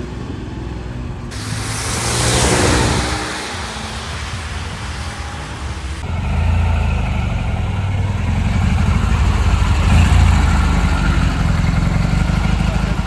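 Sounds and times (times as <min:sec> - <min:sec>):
quieter car sound: 0:01.2 - 0:12.0.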